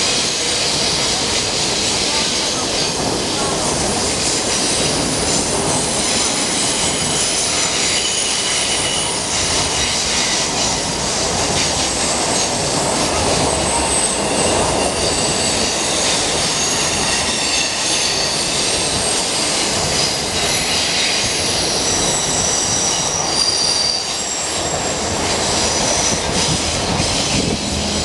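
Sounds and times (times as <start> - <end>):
train wheels rumbling on rails: 0.0 - 28.0
high thin wheel squeals: 5.3 - 10.8, 13.6 - 28.0.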